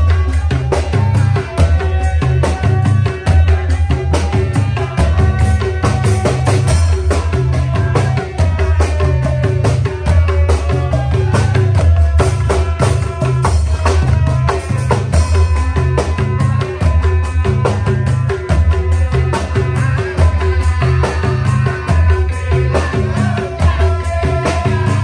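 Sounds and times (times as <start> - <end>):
fast dense percussion music: 0.0 - 25.0.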